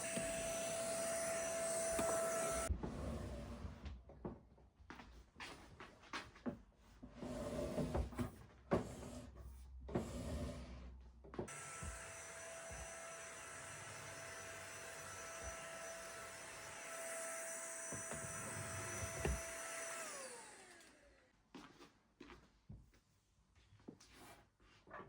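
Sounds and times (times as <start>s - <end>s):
small electric motor whining: 0.0s - 2.7s, 11.5s - 21.2s.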